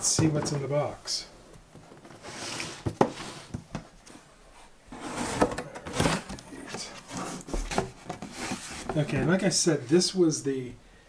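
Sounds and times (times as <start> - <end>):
cardboard box rustling: 4.9 - 9.5.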